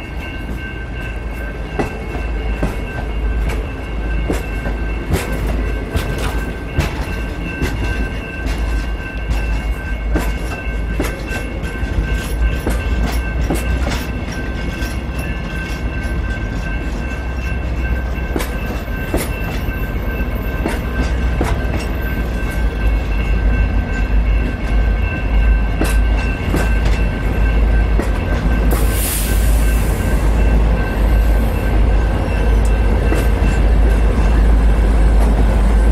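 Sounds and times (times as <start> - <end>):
train rumbling by: 0.0 - 35.9
wheels clicking over rail joints: 1.7 - 23.4.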